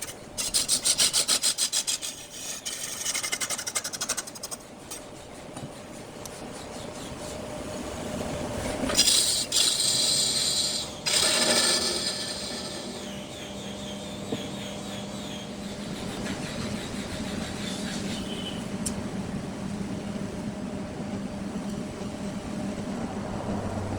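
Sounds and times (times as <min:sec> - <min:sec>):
wood lathe cutting wood: 0:08.9 - 0:15.5.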